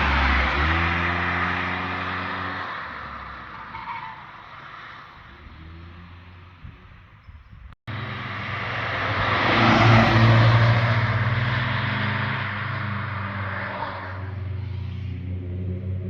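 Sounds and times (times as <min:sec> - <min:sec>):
car engine passing by: 0:00.0 - 0:06.9, 0:07.9 - 0:16.0.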